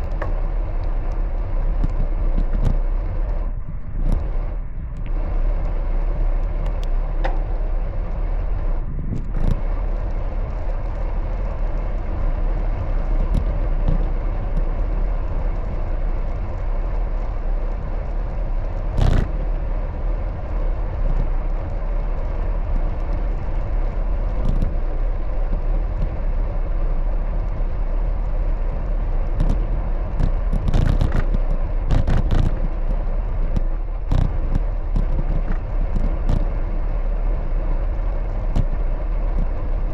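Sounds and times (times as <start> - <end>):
bicycle clicks and rattles: 0.0 - 4.3, 9.0 - 39.9
road and wind noise: 0.0 - 39.9.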